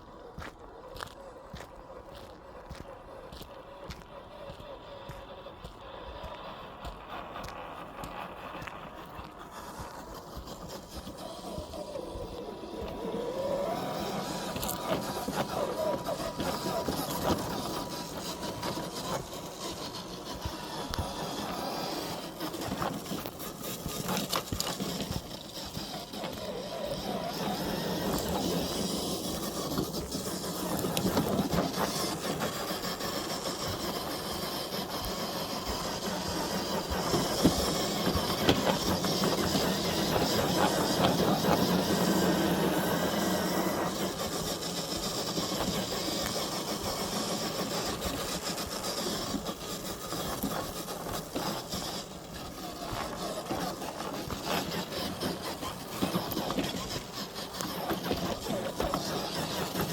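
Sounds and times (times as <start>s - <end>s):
rc car motor whirring: 0.0s - 59.9s.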